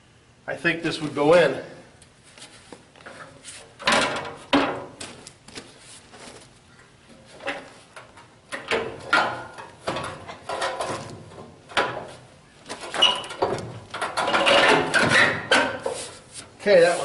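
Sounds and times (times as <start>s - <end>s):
metal knocking and scraping: 7.4s - 12.2s, 12.8s - 16.1s.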